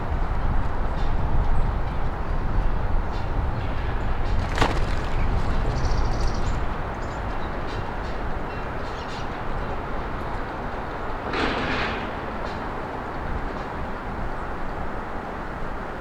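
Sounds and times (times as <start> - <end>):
small birds chirping: 4.4 - 7.2.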